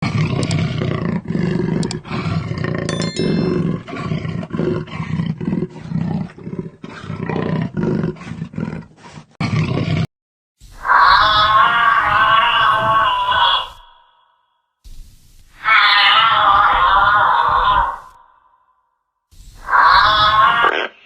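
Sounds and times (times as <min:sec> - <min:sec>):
lion roaring: 0:00.0 - 0:10.1, 0:10.8 - 0:13.9, 0:15.6 - 0:18.2.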